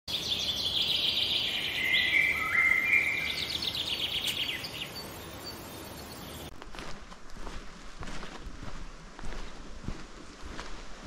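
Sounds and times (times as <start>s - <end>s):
bird trill: 0.1s - 6.5s
birds chirping and whistling: 0.1s - 6.5s.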